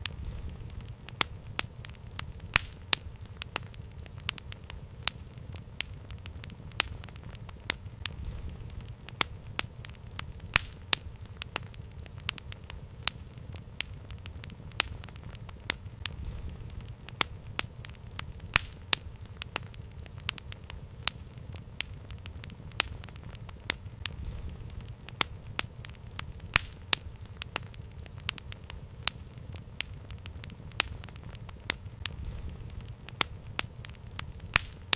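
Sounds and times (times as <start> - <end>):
campfire crackling and popping: 0.0 - 34.9
low rumble of burning wood: 0.0 - 34.9.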